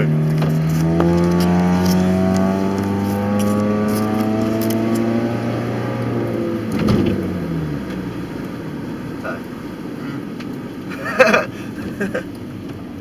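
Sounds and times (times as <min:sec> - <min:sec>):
unmuffled car engine accelerating: 0:00.0 - 0:13.0.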